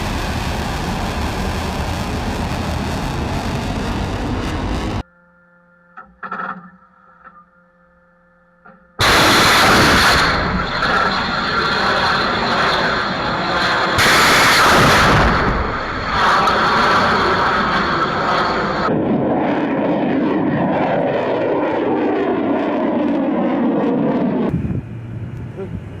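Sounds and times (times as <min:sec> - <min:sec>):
loud rocket roar: 0:00.0 - 0:05.0, 0:09.0 - 0:24.9
faint hum: 0:00.0 - 0:09.0, 0:24.5 - 0:26.0.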